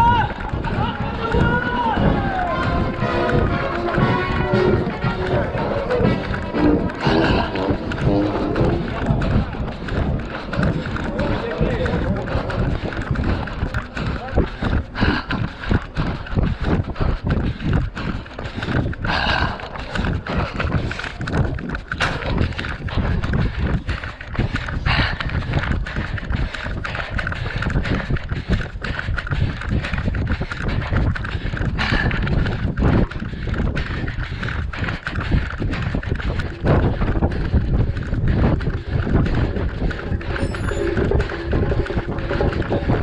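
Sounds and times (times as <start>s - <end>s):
runner's footfalls: 0.0s - 43.0s.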